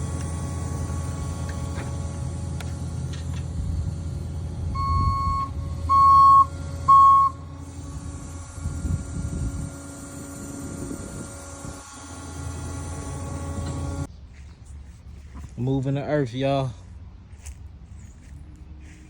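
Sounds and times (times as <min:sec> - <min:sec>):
earth-moving machine engine rumble: 0:00.0 - 0:14.1
back-up alarm beeping: 0:04.8 - 0:07.6.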